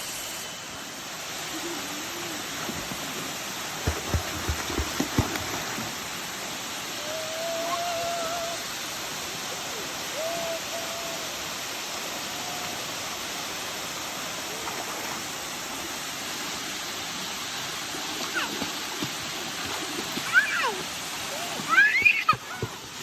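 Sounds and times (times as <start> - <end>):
waterfall rushing: 0.1 - 23.0.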